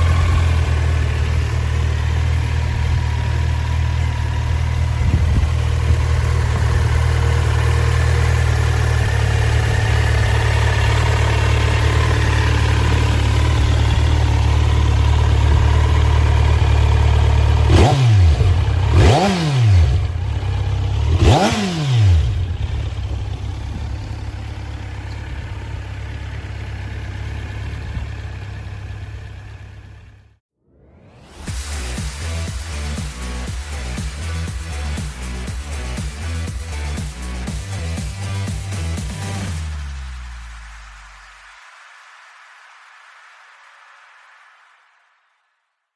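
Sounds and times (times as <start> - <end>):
motorcycle engine idling: 0.0 - 30.4, 31.9 - 40.0
motorcycle engine revving: 0.0 - 30.4, 31.5 - 40.5.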